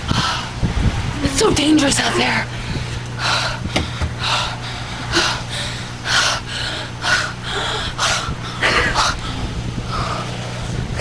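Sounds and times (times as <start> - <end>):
steady low hum: 0.0 - 11.0
person panting: 2.5 - 10.4.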